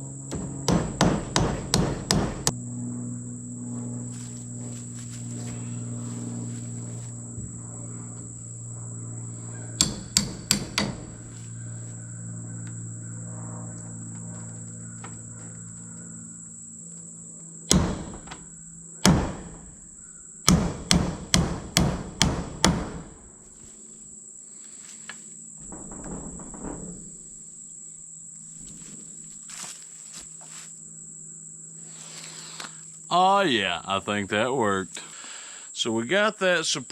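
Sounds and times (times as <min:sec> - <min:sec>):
high insect buzz: 0:00.0 - 0:36.9
hammer blows on wood: 0:00.3 - 0:02.5, 0:09.8 - 0:11.4, 0:17.7 - 0:18.4, 0:19.0 - 0:19.8, 0:20.4 - 0:23.2.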